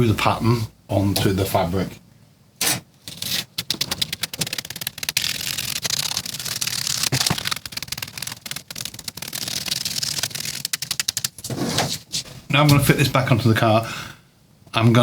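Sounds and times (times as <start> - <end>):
plastic sheet crackling: 3.1 - 13.1.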